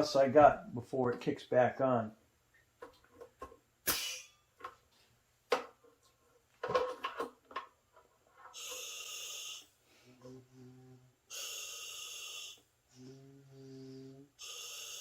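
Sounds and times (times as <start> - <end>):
buzzing exhale: 8.5 - 15.0
regulator inhale hiss: 8.5 - 15.0.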